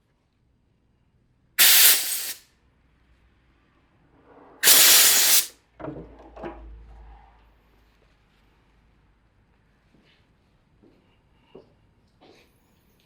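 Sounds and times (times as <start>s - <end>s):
loud hissing spray blasts: 1.6s - 2.4s, 4.6s - 5.5s.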